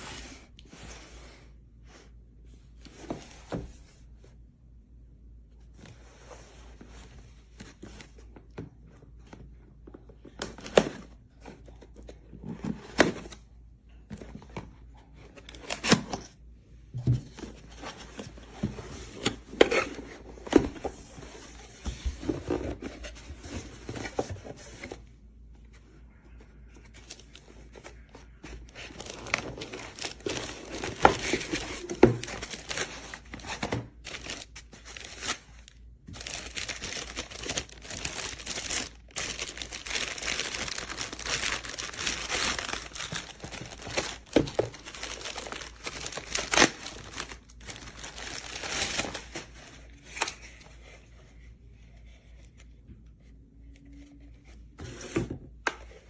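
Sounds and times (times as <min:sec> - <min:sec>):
packaging crinkling and tearing: 0:27.0 - 0:50.4.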